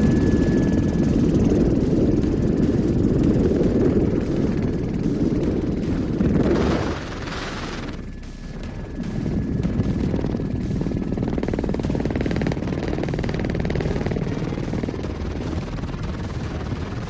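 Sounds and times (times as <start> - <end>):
avalanche rumbling: 0.0 - 17.0
wind buffeting microphone: 0.0 - 17.0.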